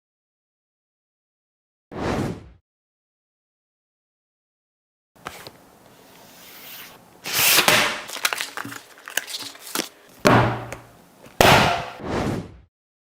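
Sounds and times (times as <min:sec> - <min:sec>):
packaging rustling and crinkling: 0:06.2 - 0:10.2.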